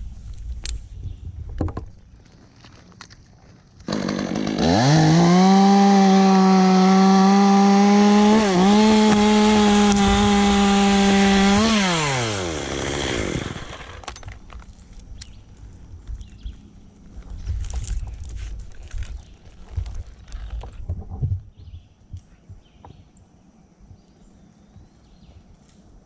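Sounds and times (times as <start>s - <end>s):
chainsaw cutting wood: 3.8s - 14.2s.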